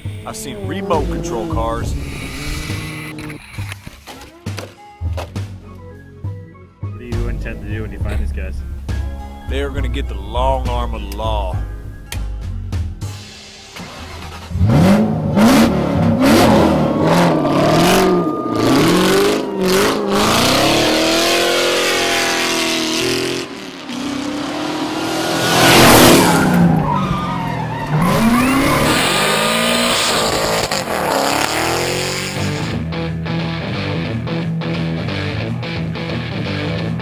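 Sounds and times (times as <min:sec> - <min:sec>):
engines revving: 0:00.0 - 0:03.8, 0:13.7 - 0:32.9
tyre screech: 0:01.3 - 0:04.0, 0:25.6 - 0:32.6.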